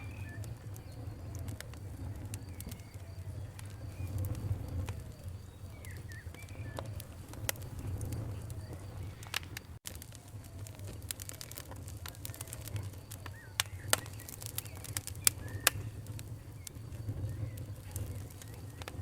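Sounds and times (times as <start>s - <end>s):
birds calling: 0.0s - 9.8s
campfire crackling and popping: 0.0s - 19.0s.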